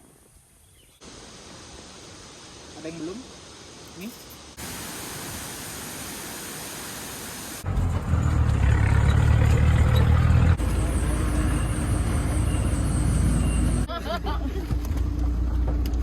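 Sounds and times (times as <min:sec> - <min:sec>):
steady hiss: 0:00.0 - 0:07.6
vehicle engine rumble: 0:07.6 - 0:16.0.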